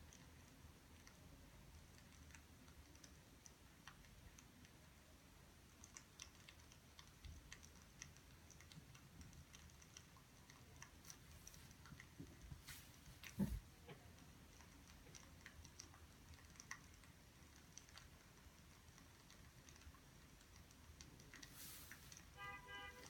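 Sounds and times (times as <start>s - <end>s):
light clicks and ticks: 0.0s - 23.0s
low room hum: 0.0s - 23.0s.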